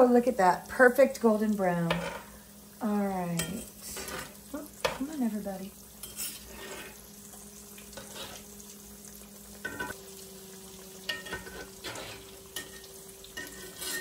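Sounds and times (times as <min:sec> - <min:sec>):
patties sizzling in oil: 0:00.0 - 0:14.0
spatula scraping pan: 0:03.8 - 0:05.1, 0:06.0 - 0:07.1, 0:07.9 - 0:08.5, 0:11.1 - 0:14.0.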